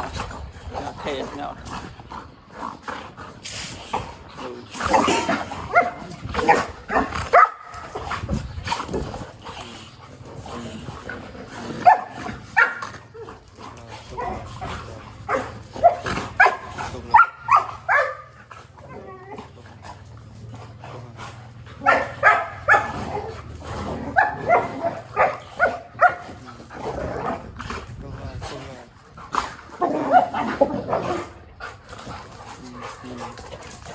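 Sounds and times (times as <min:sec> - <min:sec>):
dog barking and yelping: 0:04.9 - 0:08.0, 0:11.8 - 0:13.3, 0:14.2 - 0:19.5, 0:21.8 - 0:26.4.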